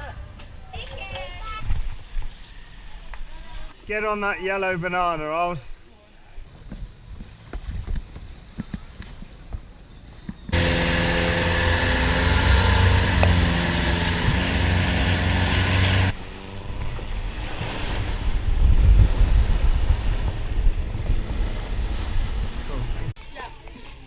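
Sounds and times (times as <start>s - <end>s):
water noise: 6.4s - 24.0s
wind buffeting microphone: 6.5s - 14.8s, 16.0s - 23.1s
quieter rumble: 6.5s - 23.2s
boat engine running: 10.4s - 23.1s.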